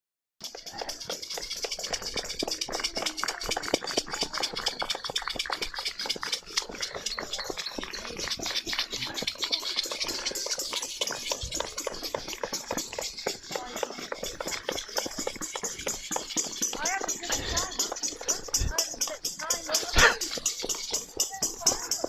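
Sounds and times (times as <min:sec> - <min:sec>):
many people clapping: 0:01.5 - 0:10.4.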